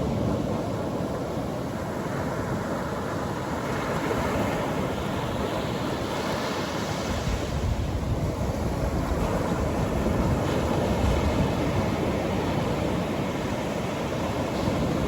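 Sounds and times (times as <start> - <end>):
waves breaking on beach: 0.0 - 15.0
wind on microphone: 3.9 - 15.0.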